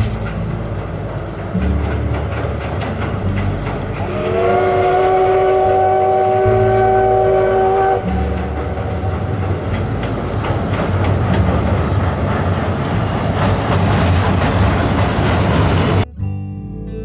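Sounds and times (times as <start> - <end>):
locomotive chord whistle: 0.0 - 13.3
train rumbling: 0.0 - 16.1.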